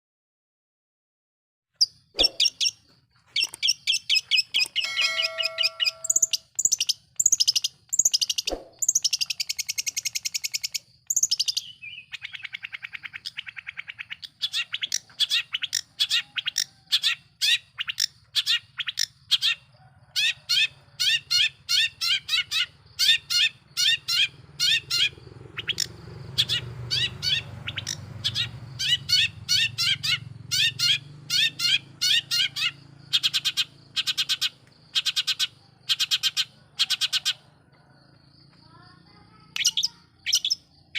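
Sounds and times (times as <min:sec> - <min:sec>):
shrike singing: 0:02.2 - 0:09.5.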